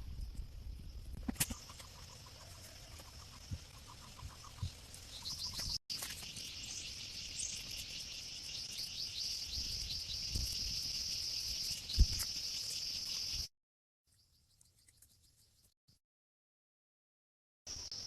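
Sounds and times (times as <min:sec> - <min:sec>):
crickets trilling: 0:00.0 - 0:13.5
insects chirping: 0:00.0 - 0:13.5, 0:17.7 - 0:18.0.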